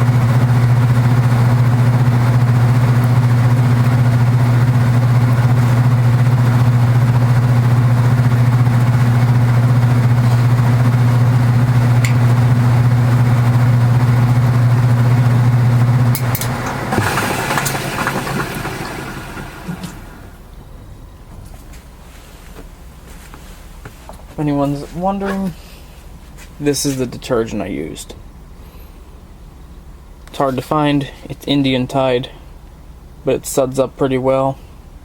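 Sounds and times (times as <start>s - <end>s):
machine rattling wind-down: 0.0s - 20.4s
washing machine humming: 0.0s - 33.4s.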